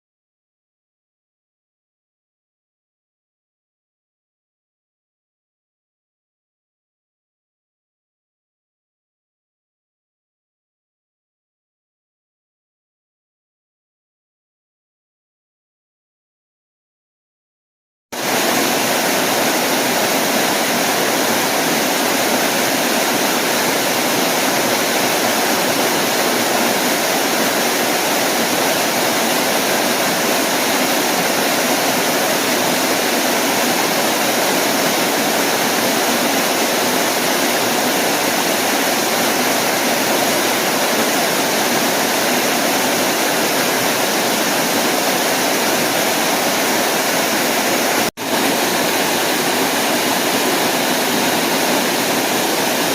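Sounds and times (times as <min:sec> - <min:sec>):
waterfall rushing: 0:18.2 - 0:52.9.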